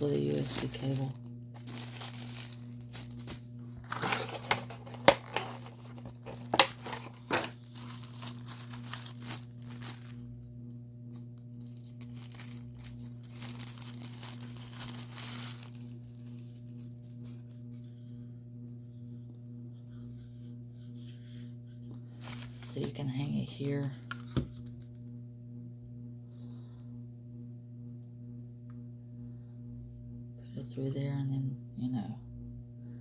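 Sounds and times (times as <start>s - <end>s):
plastic packaging crinkling: 0.0s - 10.4s, 11.3s - 17.5s, 22.1s - 23.1s
low hum: 0.0s - 33.0s.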